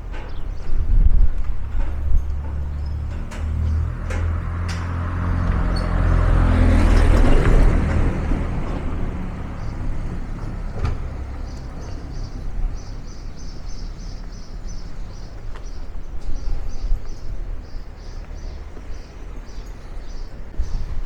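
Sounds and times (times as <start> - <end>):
bird chirping: 9.6 - 20.8.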